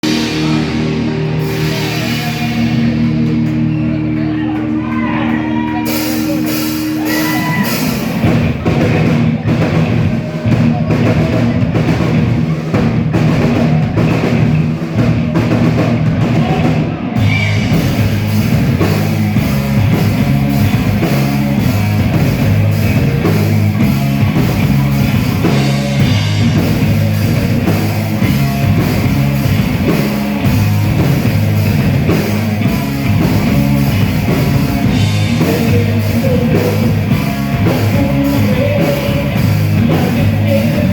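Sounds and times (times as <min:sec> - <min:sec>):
drum kit beat: 0:00.0 - 0:40.9
rock band playing live: 0:00.0 - 0:40.9.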